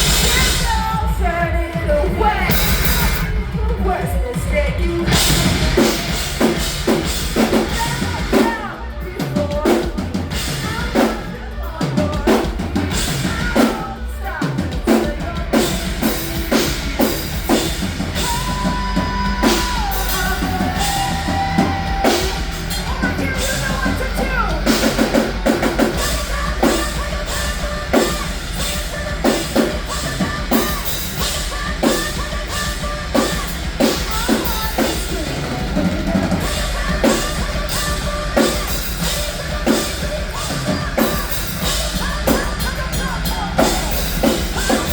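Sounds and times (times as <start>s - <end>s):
drum kick and snare beat: 0.0s - 44.9s
live rock band: 0.0s - 44.9s.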